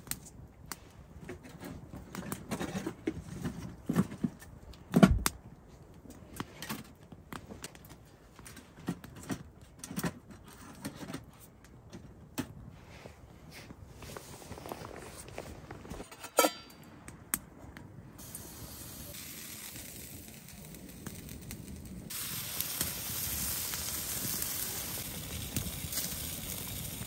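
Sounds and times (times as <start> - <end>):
handling knocks clicks and rustles: 1.2 - 12.7.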